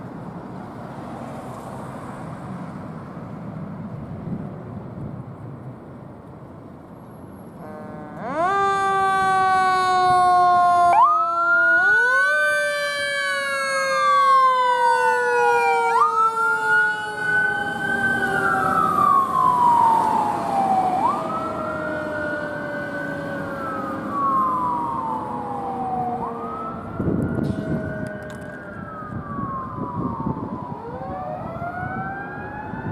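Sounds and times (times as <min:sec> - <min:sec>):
steady siren tone: 0:07.6 - 0:32.9
wailing siren: 0:07.6 - 0:32.9.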